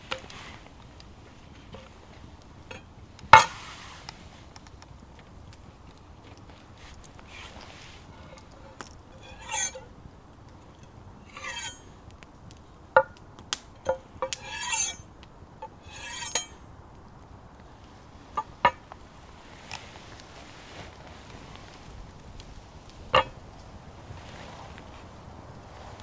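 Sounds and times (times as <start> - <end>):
rasping scrapes: 7.3 - 9.9, 11.3 - 11.8, 13.9 - 15.0, 15.8 - 16.6.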